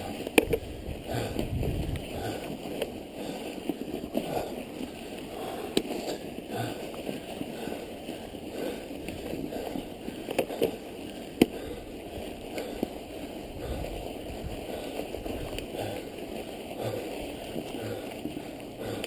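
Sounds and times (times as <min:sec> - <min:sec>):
bike tyres rushing through snow: 0:00.0 - 0:19.0.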